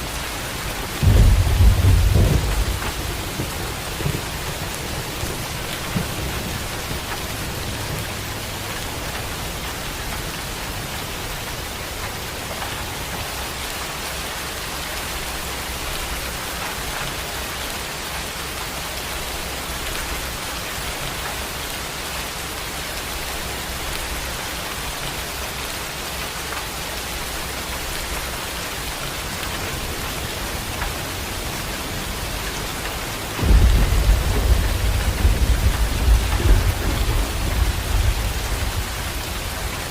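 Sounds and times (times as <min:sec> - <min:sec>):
heavy rain falling: 0:00.0 - 0:39.9
thunder rumbling: 0:00.4 - 0:11.8, 0:27.0 - 0:39.9.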